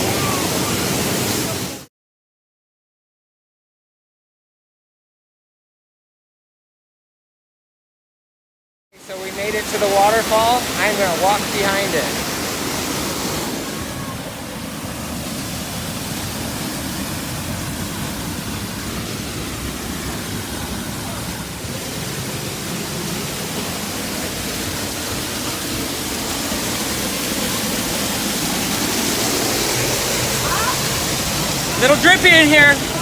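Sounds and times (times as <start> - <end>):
small waterfall splashing: 0.0 - 1.9, 9.0 - 33.0.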